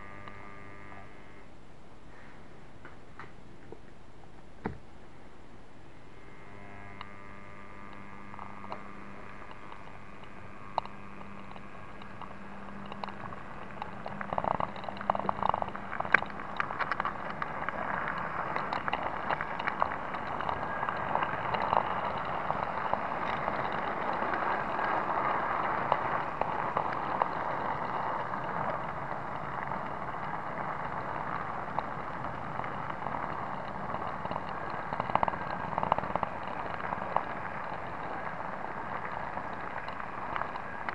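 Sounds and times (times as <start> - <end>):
model locomotive rattling on track: 9.4 - 40.9.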